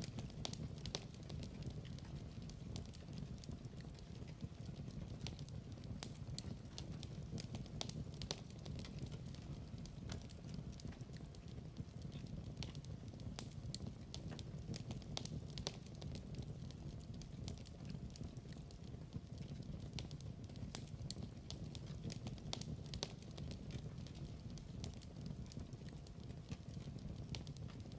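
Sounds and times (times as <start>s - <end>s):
wood fire crackling and popping: 0.0s - 27.9s.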